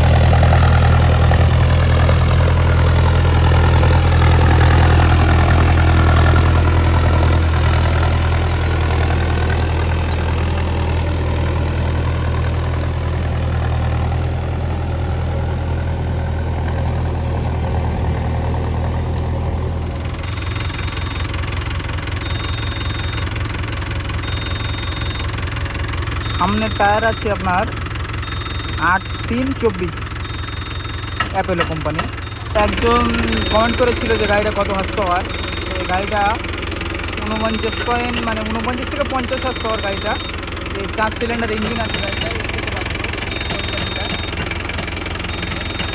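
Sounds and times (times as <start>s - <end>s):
tractor diesel engine running: 0.0s - 45.9s
short high beep: 20.2s - 21.4s, 22.2s - 23.2s, 26.2s - 36.4s, 37.2s - 45.9s.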